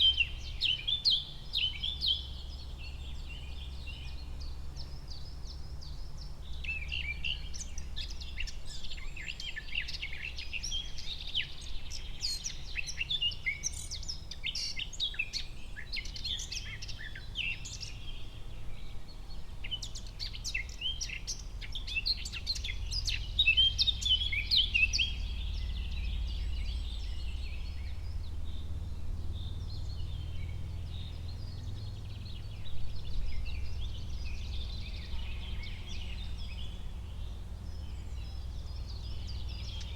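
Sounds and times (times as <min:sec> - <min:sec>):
small birds chirping: 0:00.0 - 0:39.9
steady low rumble: 0:21.4 - 0:39.9.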